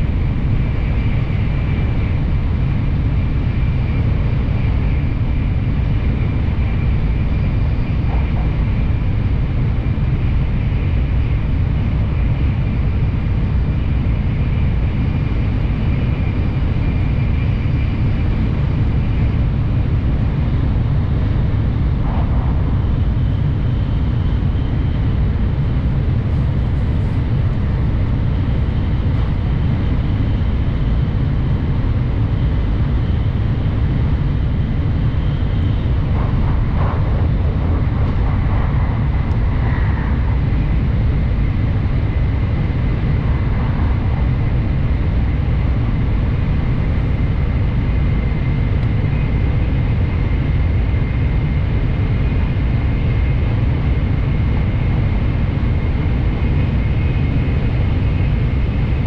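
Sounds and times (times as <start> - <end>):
faint high whine: 0.0 - 59.0
train cabin rumble: 6.1 - 12.2, 18.2 - 49.5.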